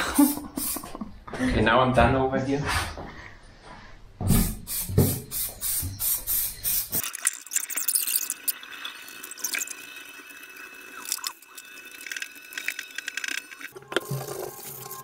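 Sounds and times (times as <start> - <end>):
spray paint can hissing: 0.2 - 1.0, 4.4 - 7.0.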